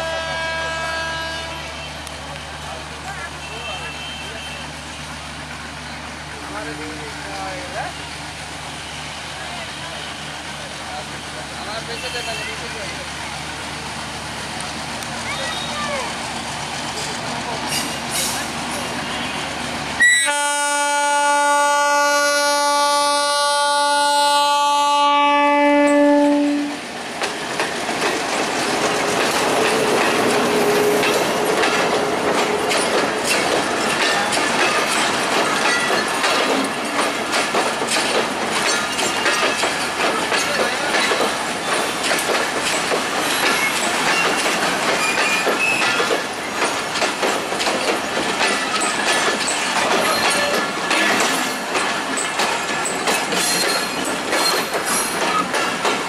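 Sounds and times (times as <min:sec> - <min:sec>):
locomotive horn: 0:00.0 - 0:02.1, 0:19.0 - 0:26.8
train wheels clattering over rail joints: 0:25.8 - 0:56.0.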